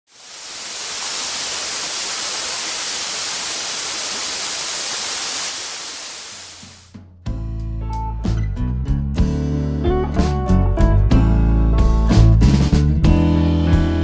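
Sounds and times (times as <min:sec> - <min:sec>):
steady hissing noise: 0:00.1 - 0:06.9.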